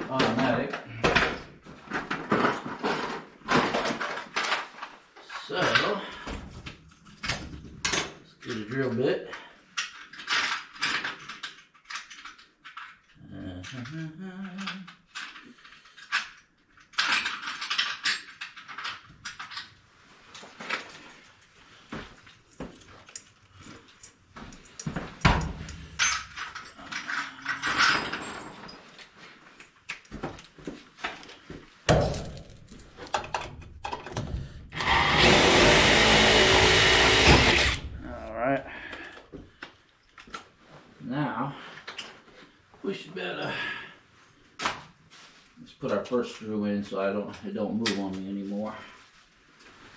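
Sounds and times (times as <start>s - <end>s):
metal tools clinking and rattling: 6.9s - 21.6s, 22.2s - 29.2s
electric drill running: 34.8s - 38.0s.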